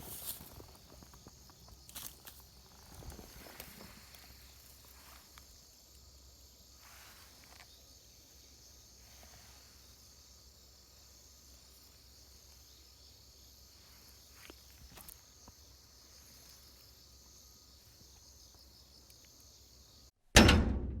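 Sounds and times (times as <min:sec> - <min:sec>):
crickets chirring: 0:00.0 - 0:20.2
loud ringing hit: 0:20.4 - 0:21.0.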